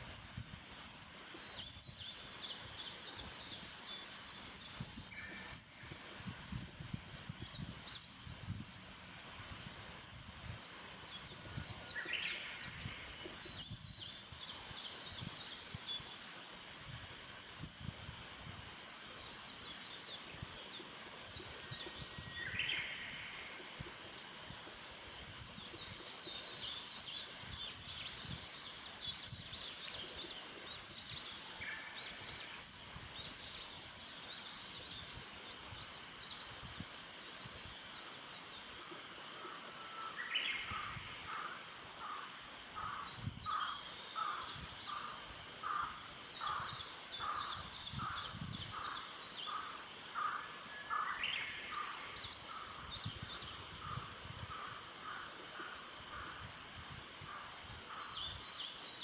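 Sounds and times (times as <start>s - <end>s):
wild birds singing: 10.8s - 16.3s, 18.8s - 59.0s.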